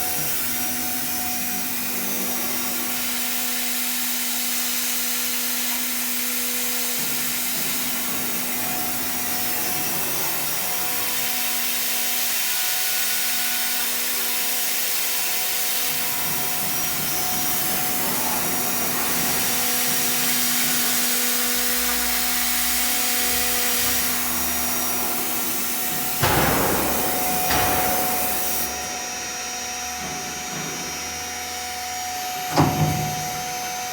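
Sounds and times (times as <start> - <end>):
milling machine spindle whine: 0.0 - 33.9
hissing cutting noise: 15.2 - 29.3.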